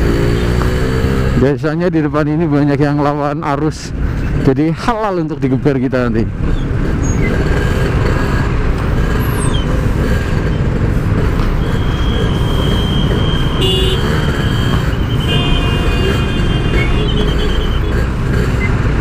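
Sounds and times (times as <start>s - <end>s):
motorcycle engine running: 9.8s - 19.0s
horn sounding: 11.6s - 18.1s
multi-tone horn: 13.6s - 14.2s, 15.2s - 18.0s.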